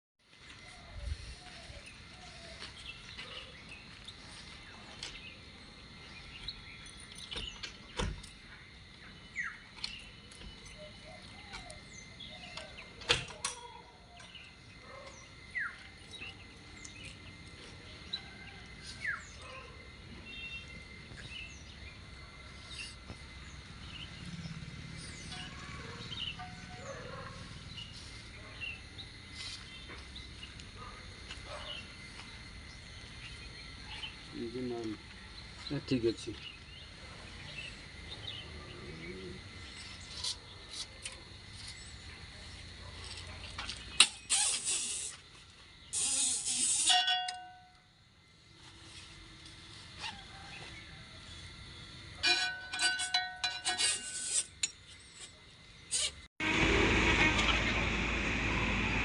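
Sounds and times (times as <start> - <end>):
birds chirping: 0.3 - 45.2
steady high whine: 56.4 - 59.0.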